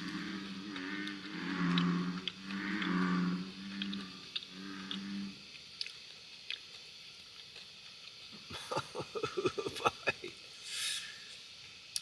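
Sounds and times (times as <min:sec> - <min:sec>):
bullfrog call: 0:00.0 - 0:05.4.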